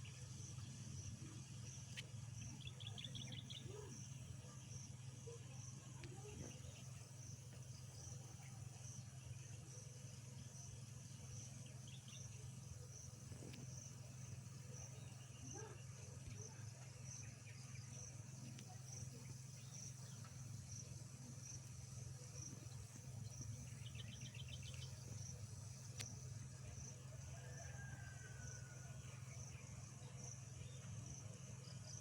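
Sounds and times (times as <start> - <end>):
low steady hum: 0.0 - 32.0
insect chirping: 1.0 - 4.4, 17.8 - 29.5.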